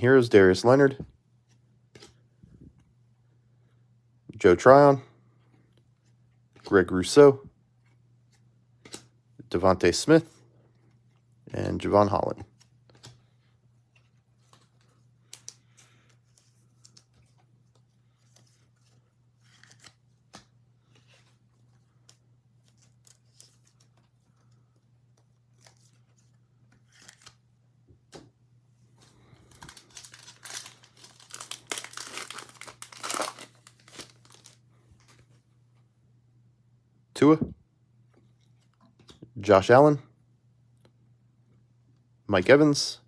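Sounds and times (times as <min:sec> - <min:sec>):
cards clicking and rustling: 0:07.9 - 0:09.2, 0:12.4 - 0:13.3, 0:13.9 - 0:28.3, 0:29.0 - 0:35.2
wrapper tearing and crinkling: 0:29.4 - 0:34.6.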